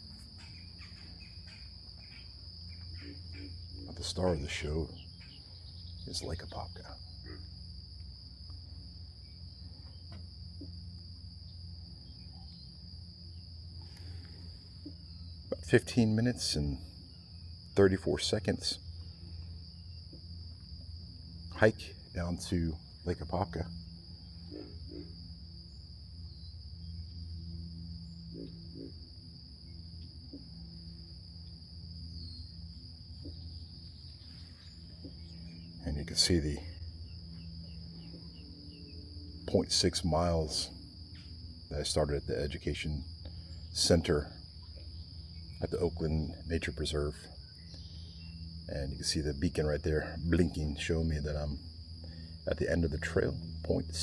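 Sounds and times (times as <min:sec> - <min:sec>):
high-pitched insect chorus: 0:00.0 - 0:54.0
low steady hum: 0:00.0 - 0:54.0
low steady rumble: 0:03.2 - 0:54.0.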